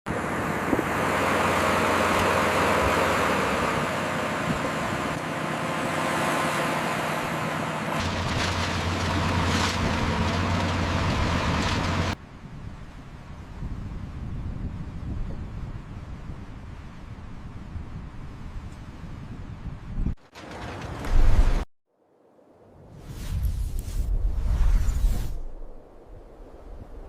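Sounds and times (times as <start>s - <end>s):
heavy engine running: 0.1s - 12.2s
wind-like hiss: 22.3s - 27.0s.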